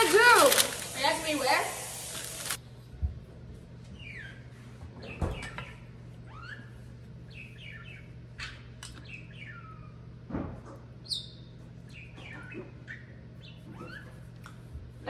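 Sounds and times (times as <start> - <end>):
bird chirping: 7.3 - 10.0, 11.0 - 14.1.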